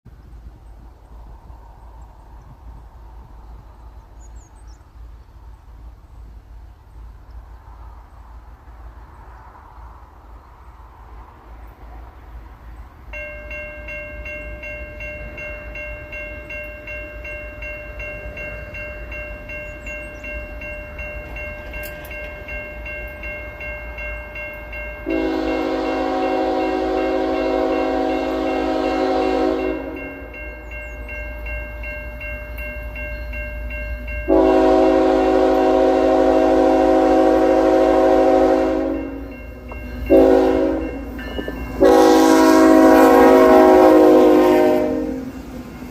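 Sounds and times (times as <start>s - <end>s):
locomotive air horn blasts: 25.0s - 30.3s, 34.3s - 39.3s, 40.1s - 45.4s.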